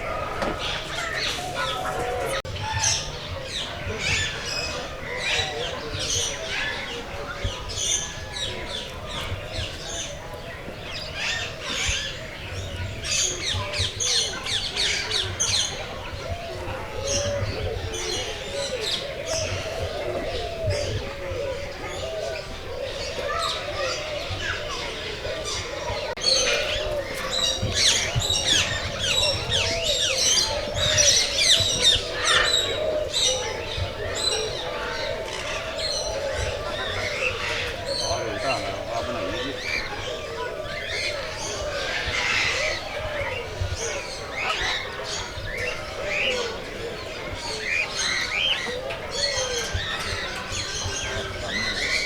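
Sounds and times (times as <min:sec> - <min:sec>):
lower bird calls: 0:00.0 - 0:03.1
birds chirping and squawking: 0:00.0 - 0:10.1, 0:10.9 - 0:52.0.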